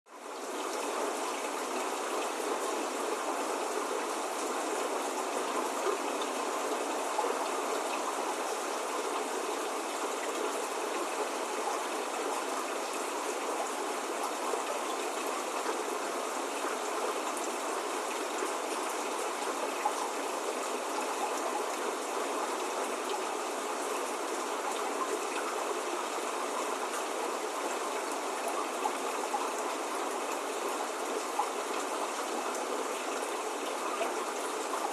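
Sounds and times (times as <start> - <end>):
rain falling: 0.1 - 34.9.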